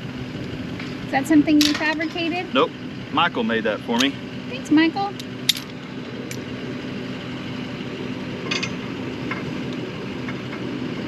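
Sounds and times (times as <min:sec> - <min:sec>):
engine idling: 0:00.0 - 0:11.0
short metallic clinks: 0:08.4 - 0:08.8.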